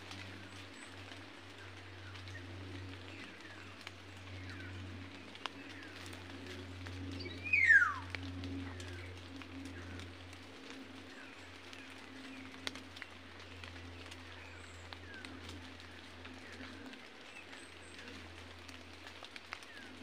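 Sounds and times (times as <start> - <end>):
birds chirping: 0.1 - 20.0
loud falling bird call: 7.4 - 8.1.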